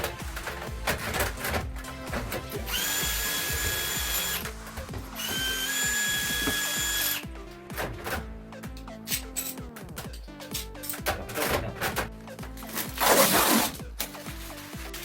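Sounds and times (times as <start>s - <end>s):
background music: 0.0s - 15.0s
power drill whine: 2.5s - 7.2s.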